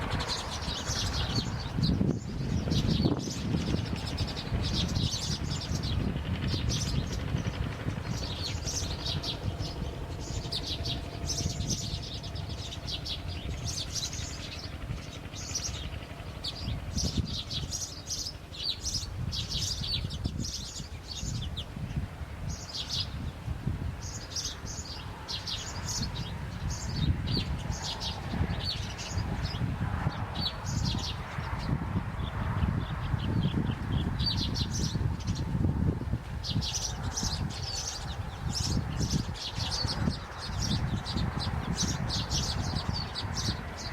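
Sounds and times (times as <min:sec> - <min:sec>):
birds chirping: 0:00.0 - 0:23.4, 0:24.0 - 0:35.7, 0:36.3 - 0:43.9
steady low rumble: 0:00.0 - 0:43.9.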